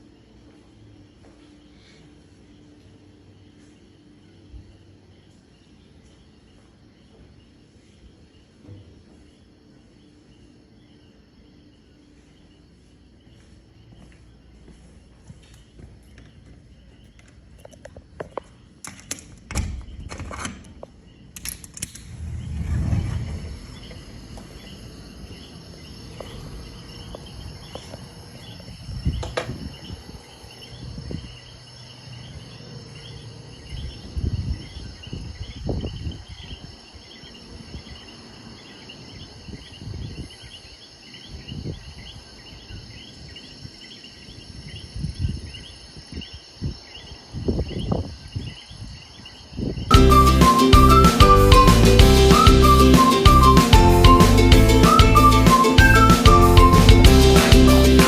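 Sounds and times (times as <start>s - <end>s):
insects chirping: 0.0s - 58.0s
sharp clicks: 17.2s - 22.3s
low thumps: 21.7s - 28.0s.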